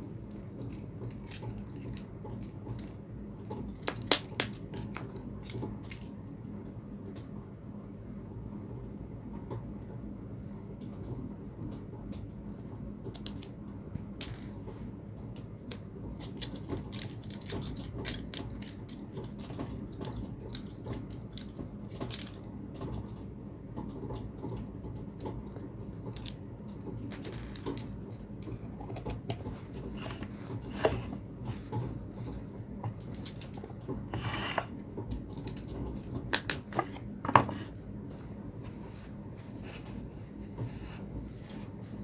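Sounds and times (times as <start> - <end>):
metal parts clinking: 0.6 - 3.0, 16.2 - 22.4, 26.7 - 28.2, 32.9 - 37.0.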